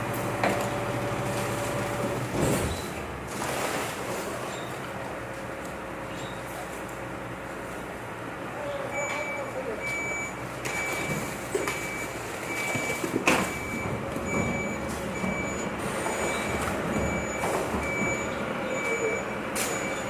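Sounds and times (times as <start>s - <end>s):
diesel engine running: 0.0s - 20.0s
truck reversing alarm beeping: 8.8s - 20.0s.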